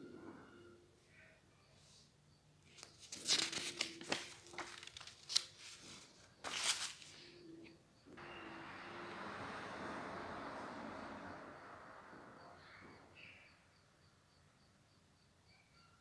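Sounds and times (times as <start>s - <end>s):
paper crackles: 2.7s - 7.3s
paper rustling and crinkling: 2.7s - 7.3s.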